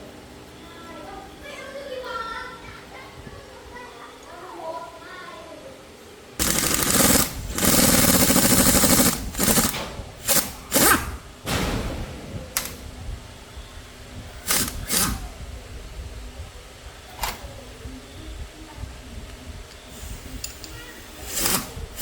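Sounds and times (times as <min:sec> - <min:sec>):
low workshop noise: 0:00.0 - 0:22.0
power tool rattling in bursts: 0:06.4 - 0:11.4, 0:14.3 - 0:15.2, 0:19.9 - 0:22.0.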